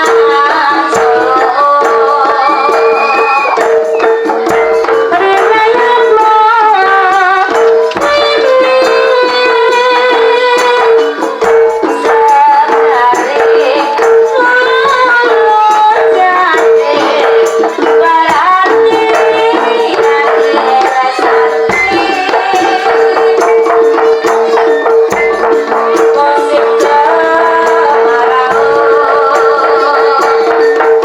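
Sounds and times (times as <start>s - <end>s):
drum and rattle percussion: 0.0s - 31.0s.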